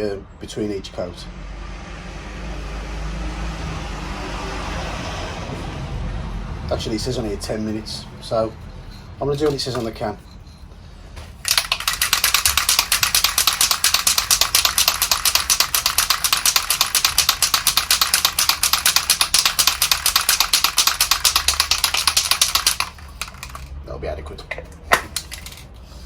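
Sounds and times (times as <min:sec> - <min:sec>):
spray can ball rattling: 0:11.4 - 0:23.8, 0:24.6 - 0:25.7.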